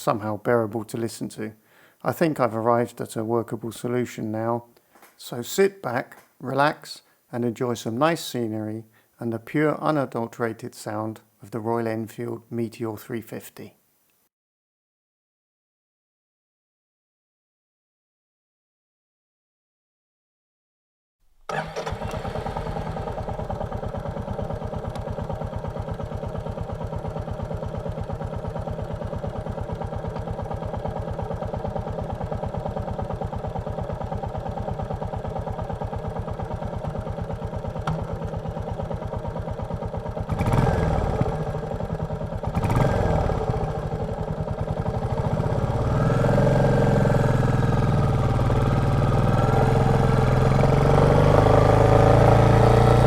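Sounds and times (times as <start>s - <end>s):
motorcycle engine idling: 21.5s - 53.0s.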